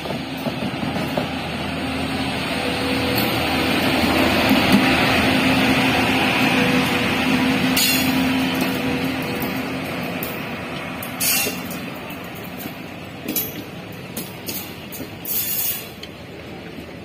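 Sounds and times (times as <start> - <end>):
train coaches rushing past: 0.0 - 17.0
sharp clanks: 7.8 - 8.8, 11.0 - 16.1.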